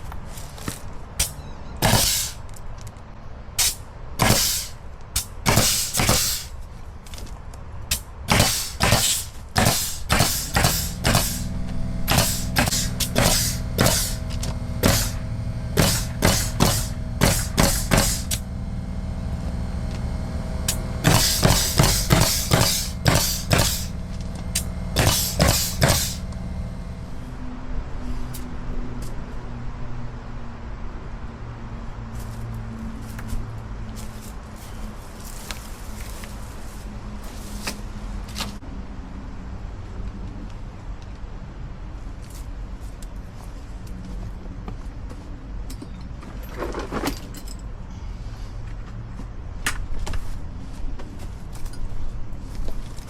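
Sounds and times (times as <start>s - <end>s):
nail gun firing: 1.2s - 2.4s, 3.6s - 6.5s, 7.9s - 18.5s, 20.6s - 26.5s
air compressor motor hum: 1.8s - 2.4s, 3.6s - 6.6s, 8.3s - 27.4s.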